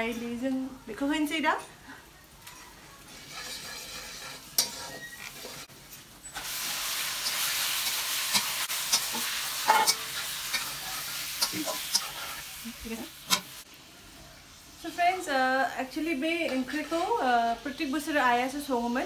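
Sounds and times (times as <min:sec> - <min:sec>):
chicken sizzling in hot oil: 0:02.2 - 0:19.0
wooden spoon scraping a pan: 0:02.7 - 0:12.4, 0:16.4 - 0:17.8.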